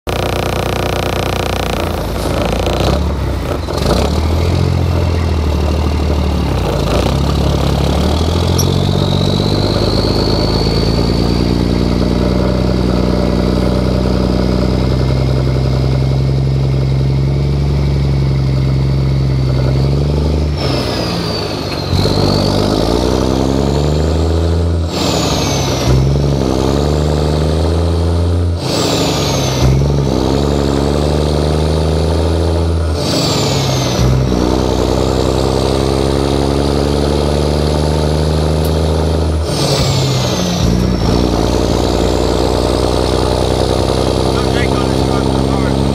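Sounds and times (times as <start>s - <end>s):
diesel truck engine pulling hard: 0.1s - 45.9s
high whistle falling: 8.5s - 11.8s.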